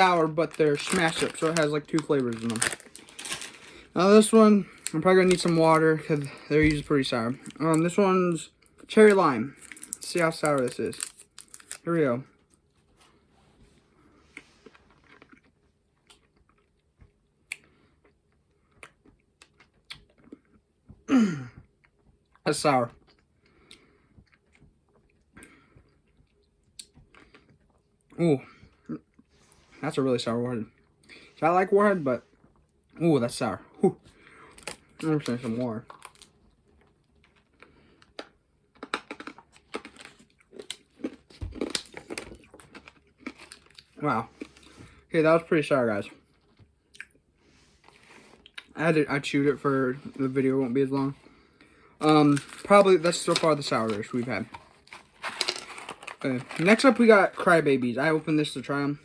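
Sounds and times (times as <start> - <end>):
person chewing hard candy: 14.7 - 20.6, 23.0 - 29.3, 34.0 - 45.1
person sucking and chewing candy: 37.4 - 44.8.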